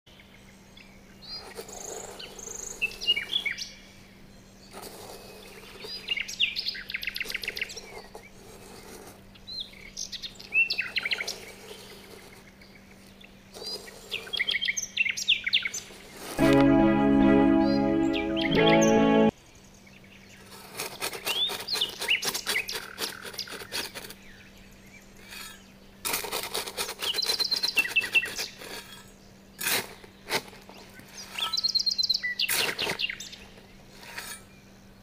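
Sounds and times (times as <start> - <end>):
small birds chirping: 0.1 - 16.0
music: 16.4 - 19.3.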